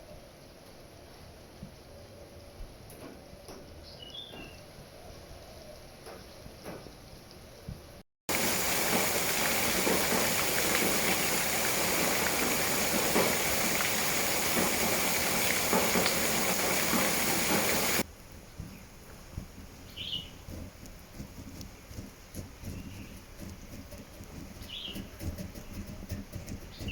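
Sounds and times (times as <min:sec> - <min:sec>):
heavy rain hissing: 0:08.3 - 0:18.1.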